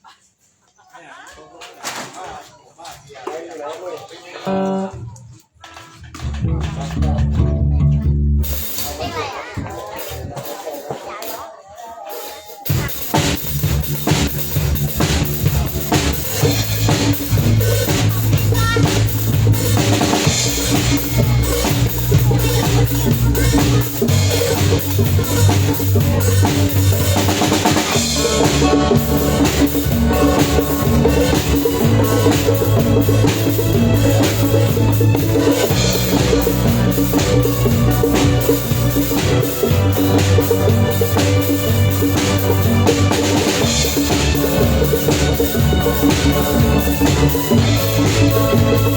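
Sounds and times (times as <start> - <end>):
band playing: 6.1 - 48.9
low bass line: 6.2 - 8.8, 13.3 - 48.9
drum kit hitting: 8.4 - 11.3, 12.3 - 48.9.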